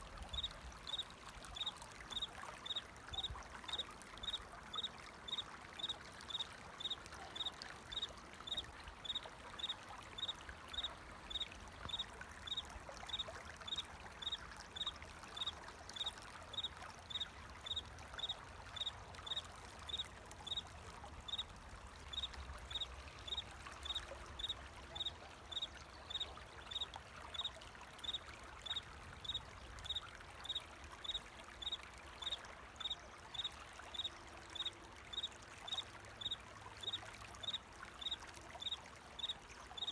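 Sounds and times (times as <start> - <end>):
flowing water trickling: 0.0 - 39.9
cricket chirping: 0.4 - 1.0, 1.6 - 20.6, 29.2 - 39.9.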